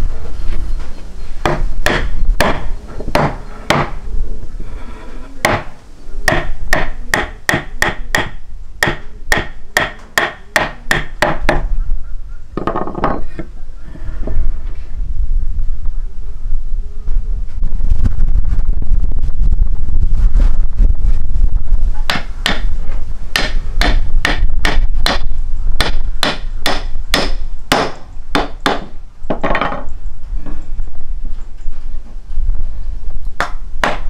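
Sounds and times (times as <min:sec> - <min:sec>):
low rumble: 0:11.8 - 0:28.3
flurry of knocks: 0:12.6 - 0:13.5.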